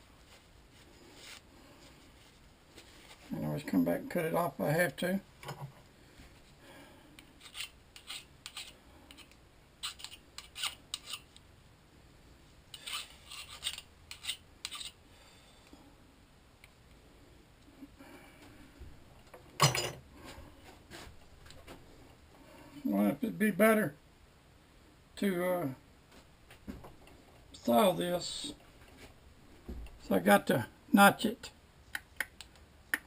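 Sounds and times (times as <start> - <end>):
scraping and rubbing on metal: 7.4 - 11.4, 12.7 - 15.0.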